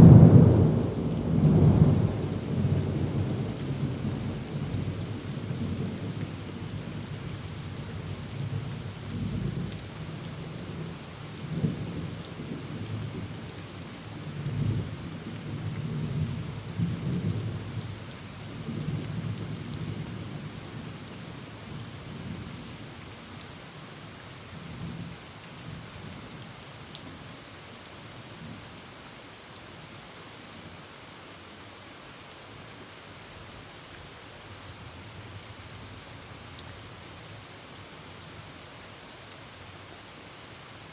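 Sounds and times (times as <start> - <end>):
thunder rumbling: 0.0 - 4.4
heavy rain on a tin roof: 0.0 - 40.9.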